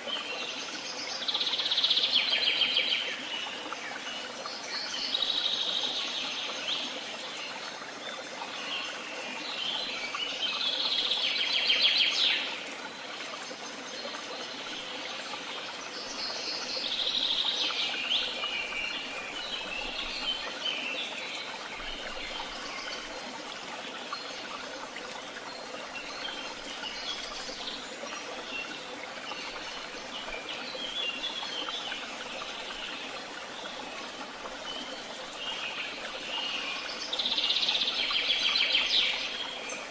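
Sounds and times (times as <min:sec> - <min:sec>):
songbirds singing: 0:13.3 - 0:39.9.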